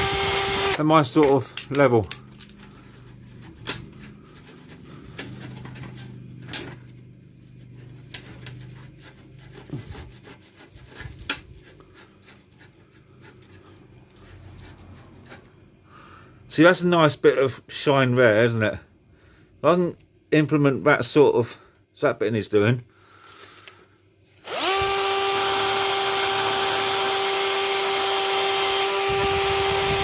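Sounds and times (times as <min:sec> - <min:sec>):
rubbing and scraping on metal springs: 0:01.4 - 0:15.6.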